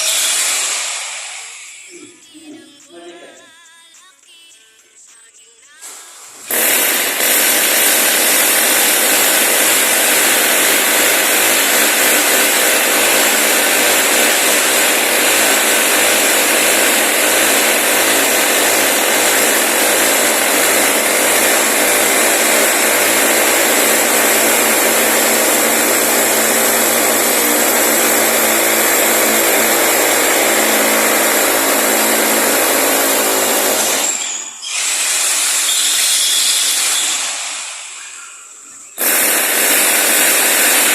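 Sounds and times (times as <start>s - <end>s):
electric power tool running: 6.5s - 37.2s, 39.0s - 40.9s.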